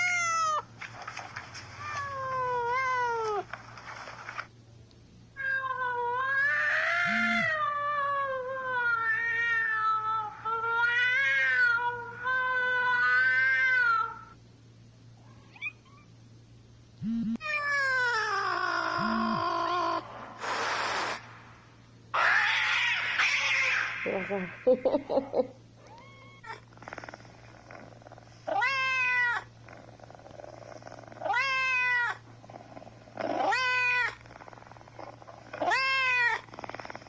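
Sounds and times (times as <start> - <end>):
cat yowling: 5.4 - 14.2, 22.2 - 24.0.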